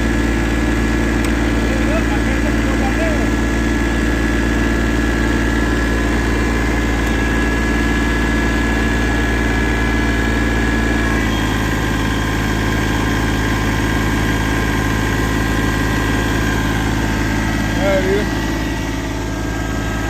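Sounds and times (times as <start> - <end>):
tractor engine running: 0.0 - 20.0
high whine: 5.0 - 20.0.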